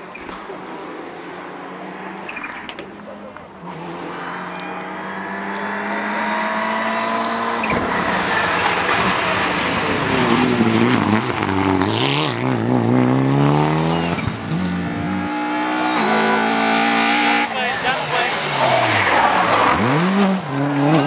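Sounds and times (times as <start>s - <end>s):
rally car engine racing: 0.0s - 21.0s.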